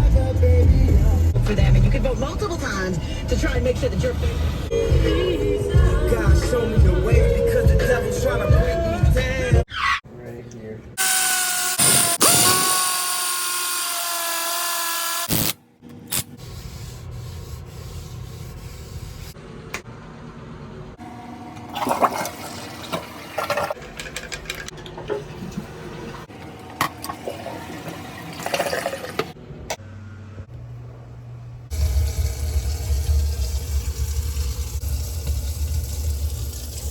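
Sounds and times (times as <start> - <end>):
music with singing: 0.0 - 2.1, 3.0 - 9.7.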